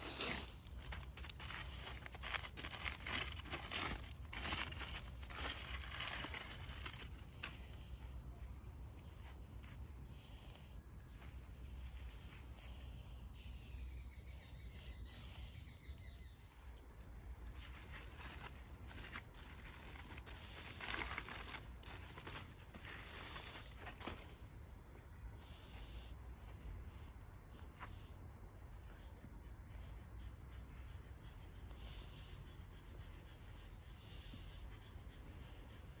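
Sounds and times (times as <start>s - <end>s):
rustling: 0.0s - 7.8s, 17.4s - 24.4s
insect chirping: 0.0s - 36.0s.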